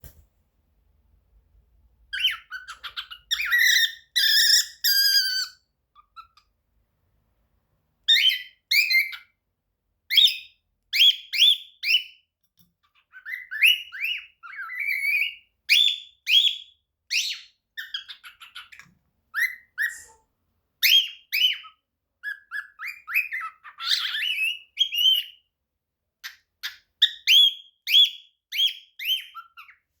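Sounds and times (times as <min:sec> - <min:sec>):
cockatiel whistling: 0:02.2 - 0:05.6, 0:08.1 - 0:09.3, 0:13.1 - 0:20.2, 0:20.8 - 0:25.4, 0:26.2 - 0:29.8.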